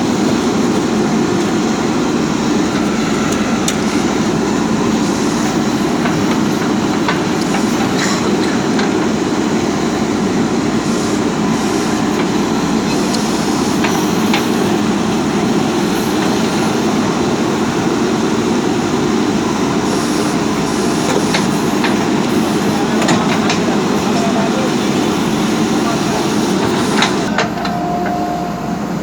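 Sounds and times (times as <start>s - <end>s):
backhoe diesel engine running: 0.0s - 29.0s
sharp clicks and rattles: 2.5s - 9.5s.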